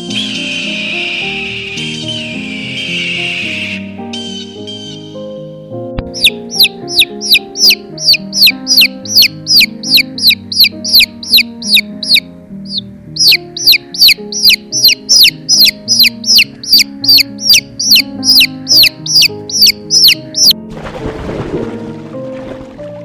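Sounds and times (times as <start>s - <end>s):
slow keyboard music: 0.0s - 23.0s
bird chicks peeping: 6.0s - 20.6s.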